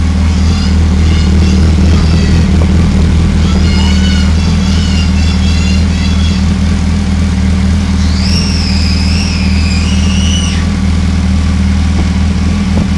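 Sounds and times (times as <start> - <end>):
motorcycle engine idling: 0.0 - 12.9
high wavering whistle: 8.0 - 10.7.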